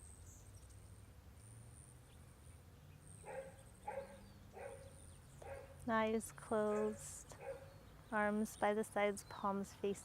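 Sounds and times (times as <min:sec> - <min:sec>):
faint animal barks: 0:03.2 - 0:05.9, 0:06.7 - 0:07.8.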